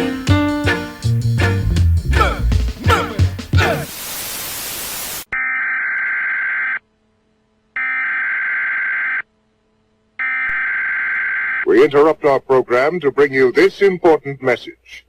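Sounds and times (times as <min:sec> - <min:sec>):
static burst: 0:01.6 - 0:05.3.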